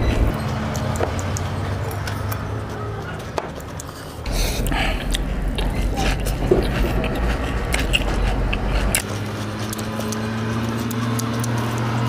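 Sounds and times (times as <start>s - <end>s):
low rumble: 0.0s - 0.4s, 4.3s - 10.4s
crunchy chewing and biting: 0.0s - 12.0s.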